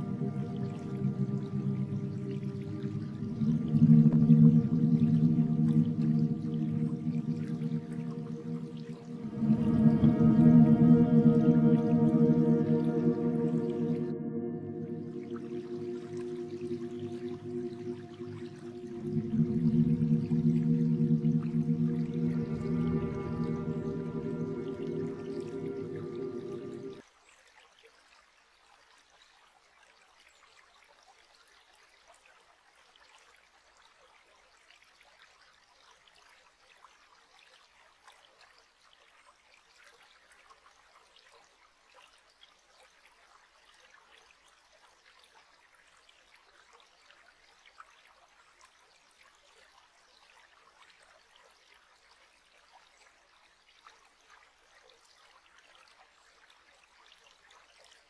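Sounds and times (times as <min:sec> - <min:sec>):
faint trickling water: 0:00.0 - 0:27.0.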